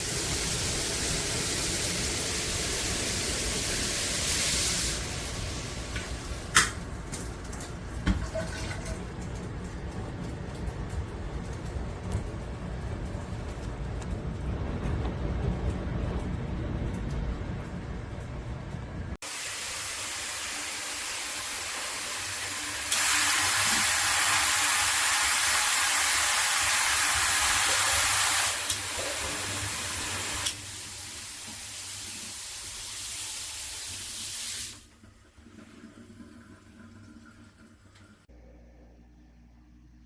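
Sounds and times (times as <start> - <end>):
shower head spraying water: 19.2 - 34.8.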